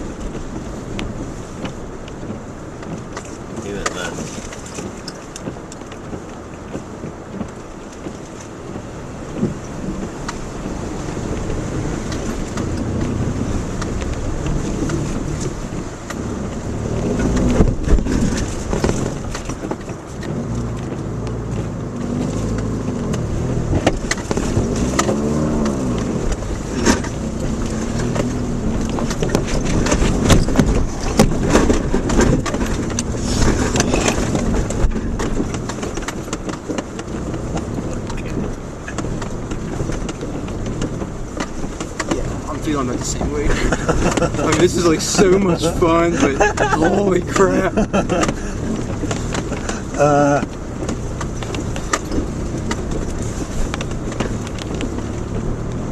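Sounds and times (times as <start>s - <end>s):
car engine revving: 0.0s - 55.9s
car rumbling over rocky track: 0.0s - 55.9s
knocks and clunks over rocks: 0.0s - 55.9s.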